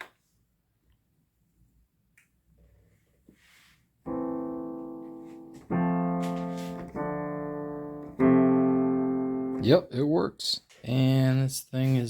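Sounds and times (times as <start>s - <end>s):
digital piano chords: 4.0s - 10.1s.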